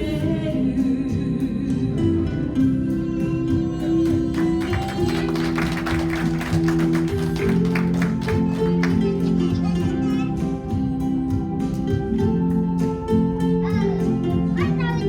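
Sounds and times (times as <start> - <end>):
guitar strumming: 3.6 - 15.0.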